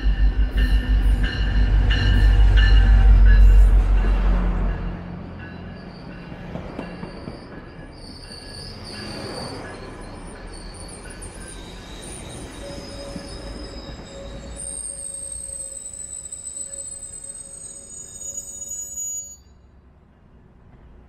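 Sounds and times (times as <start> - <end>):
railroad cars rolling on rails: 0.0 - 21.0
wheels squealing: 5.7 - 19.6.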